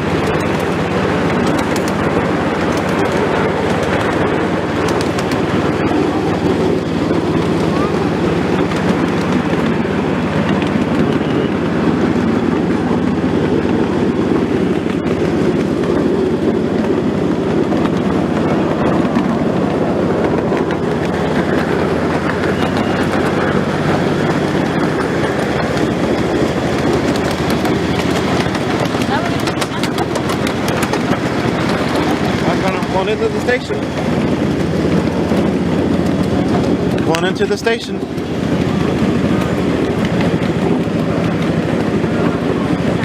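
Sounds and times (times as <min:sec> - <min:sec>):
train wheels rumbling on track: 0:00.0 - 0:43.0.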